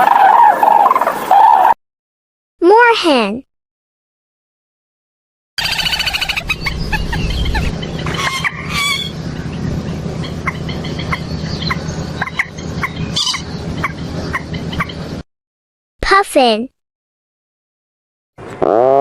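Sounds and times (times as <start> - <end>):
moorhen calling: 0.0 - 1.8, 5.6 - 15.1
low background hum: 5.6 - 15.2.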